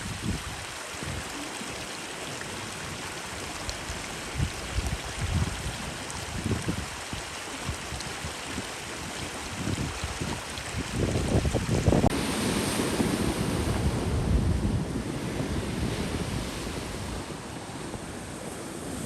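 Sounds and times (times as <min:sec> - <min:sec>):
wind gusting on microphone: 0:00.0 - 0:01.4, 0:03.7 - 0:19.0
ocean surf rushing: 0:12.0 - 0:19.0.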